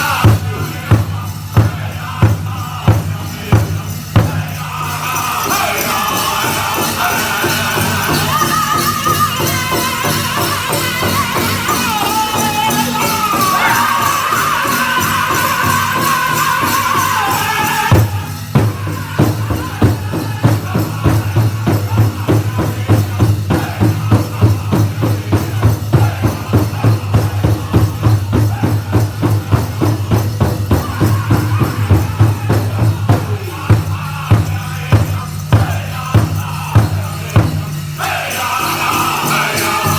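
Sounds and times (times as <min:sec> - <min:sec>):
steady drumbeat: 0:00.0 - 0:39.9
high-pitched singing: 0:04.6 - 0:18.0.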